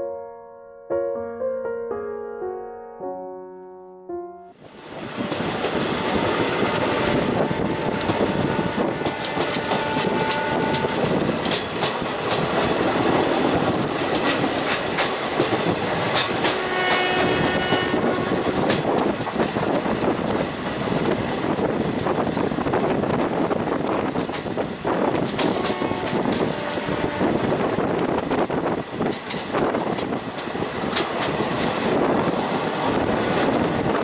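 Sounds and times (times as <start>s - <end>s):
train rushing air and rolling: 4.5s - 34.0s
wheels clicking over rail joints: 5.0s - 26.6s, 27.2s - 34.0s
train horn tone: 5.8s - 11.4s, 16.4s - 18.9s, 25.4s - 28.0s.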